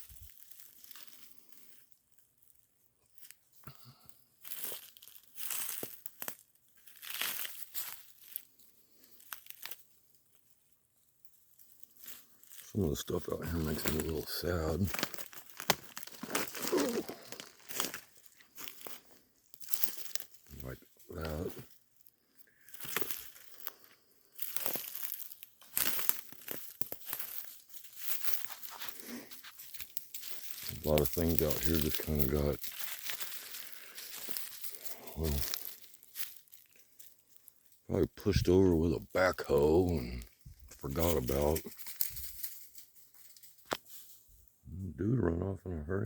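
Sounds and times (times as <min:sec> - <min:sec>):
footsteps crunching through leaves: 0:00.0 - 0:01.7, 0:04.4 - 0:09.9, 0:11.3 - 0:44.2
twigs cracking: 0:00.0 - 0:01.8, 0:04.4 - 0:44.2.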